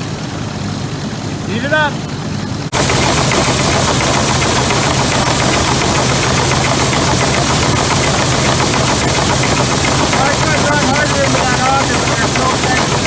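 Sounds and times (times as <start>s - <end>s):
grain auger clatter: 2.7s - 13.0s
tractor engine running: 2.7s - 13.0s.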